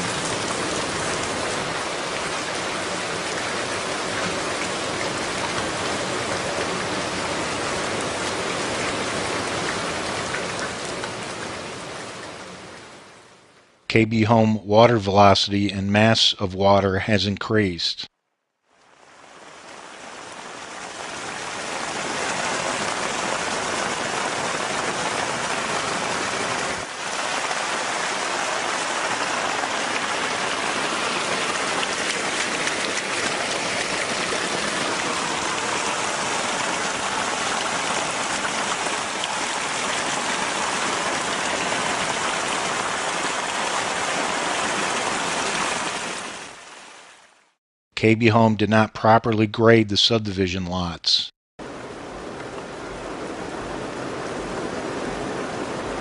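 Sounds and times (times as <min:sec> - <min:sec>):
storm water rushing: 0:00.0 - 0:13.2, 0:18.9 - 0:47.4, 0:51.6 - 0:56.0
heavy rain hissing: 0:19.2 - 0:46.4.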